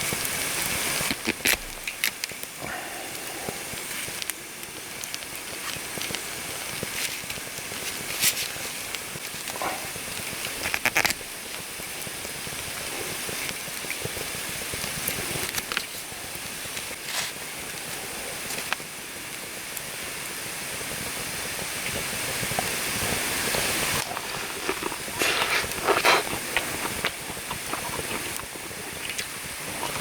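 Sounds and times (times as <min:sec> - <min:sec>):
campfire crackling: 0:00.0 - 0:30.0.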